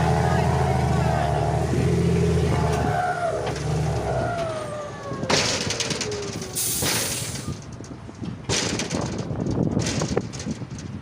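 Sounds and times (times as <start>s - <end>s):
truck engine with falling whine: 0.0s - 10.8s
air hissing: 6.6s - 7.6s.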